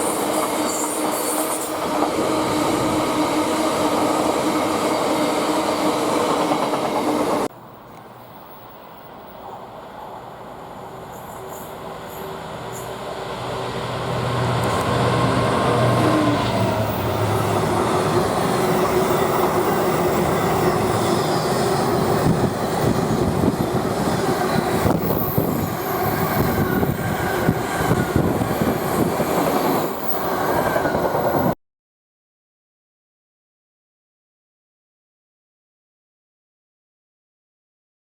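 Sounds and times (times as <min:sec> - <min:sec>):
train wheel squeal: 0:00.0 - 0:03.0, 0:11.0 - 0:13.0, 0:15.8 - 0:31.6
train engine hum: 0:00.0 - 0:31.5.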